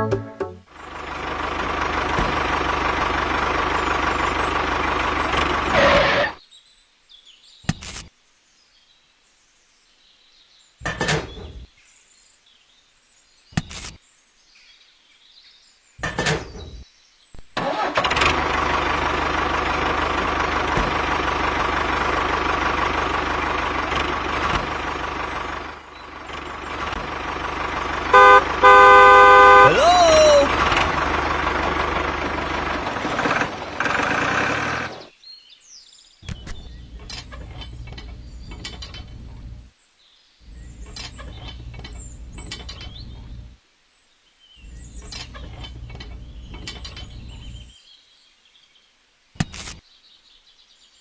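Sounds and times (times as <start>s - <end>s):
motor running: 18.1s - 35.0s.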